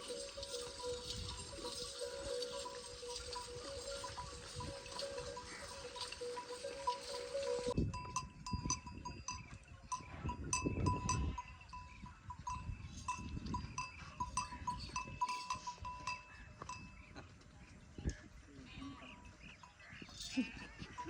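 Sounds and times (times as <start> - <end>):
livestock bells tinkling: 0.0 - 17.2, 19.6 - 21.0.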